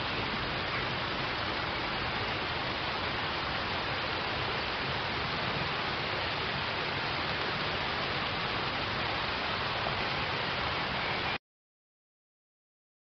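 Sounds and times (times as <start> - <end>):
rain falling on water: 0.0 - 11.4.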